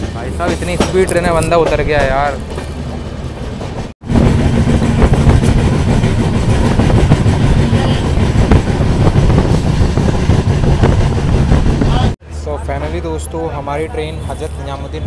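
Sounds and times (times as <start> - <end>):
light rail clatter: 0.0 - 12.0
train rumbling along track: 0.0 - 15.0.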